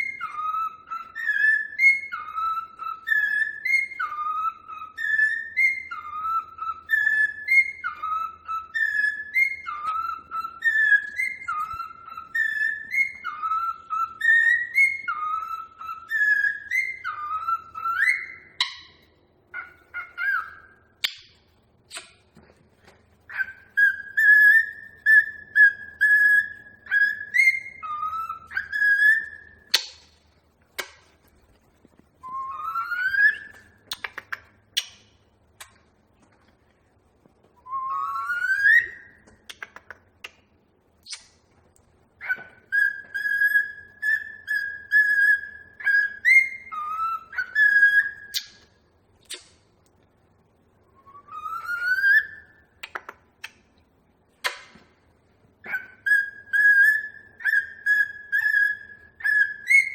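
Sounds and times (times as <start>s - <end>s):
cockatiel whistling: 0.0s - 22.2s, 23.2s - 30.1s, 31.8s - 35.0s, 37.6s - 39.4s, 42.2s - 48.7s, 50.8s - 52.8s, 55.6s - 59.9s.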